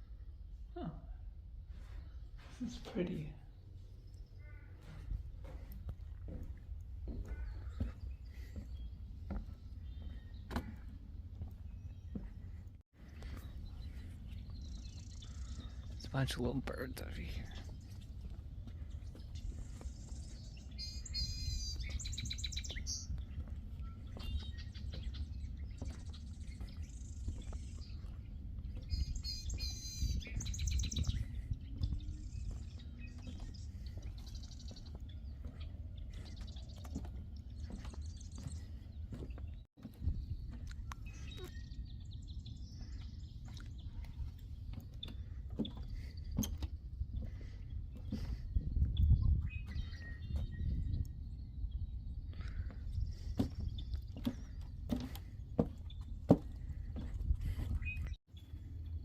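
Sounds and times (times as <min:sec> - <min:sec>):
low rumble of wind: 0:00.0 - 0:59.0
songbirds chirping and twittering: 0:00.0 - 0:59.0.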